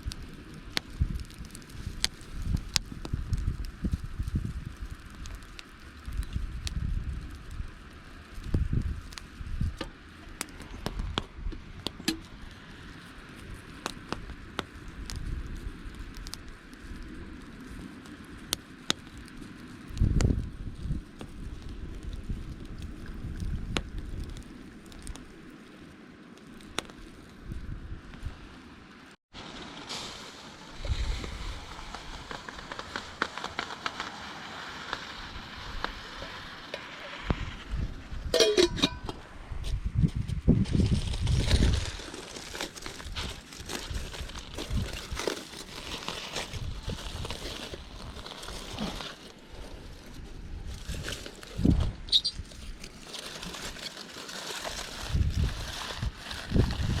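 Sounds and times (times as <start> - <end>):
wind rumble on microphone: 0.0 - 25.5, 26.6 - 28.5, 30.7 - 34.0, 34.9 - 57.0
campfire crackling and popping: 0.0 - 57.0.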